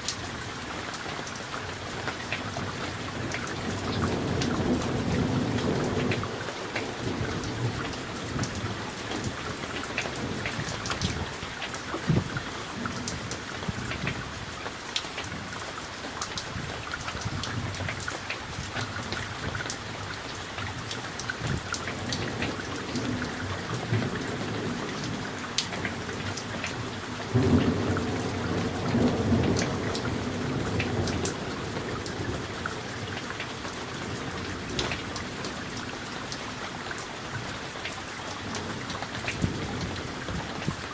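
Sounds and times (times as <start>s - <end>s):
steady rain: 0.0s - 40.9s
thunder rumbling: 21.4s - 35.8s.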